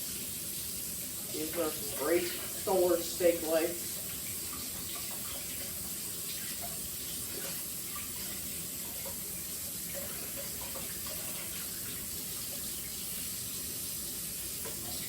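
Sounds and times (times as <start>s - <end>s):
tap water running into sink: 0.0s - 15.0s.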